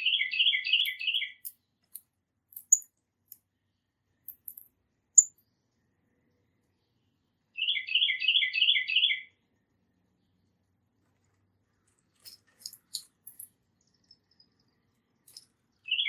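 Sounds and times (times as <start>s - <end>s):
songbird singing: 0.0s - 2.0s, 3.5s - 9.4s, 12.1s - 16.0s.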